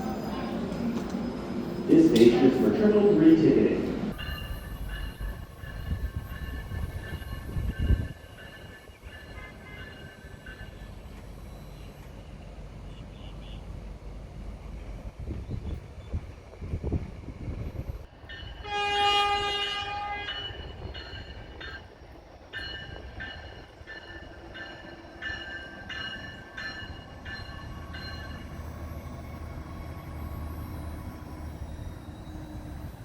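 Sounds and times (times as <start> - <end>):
train rumbling: 0.0 - 33.0
train horn blast: 18.6 - 20.4.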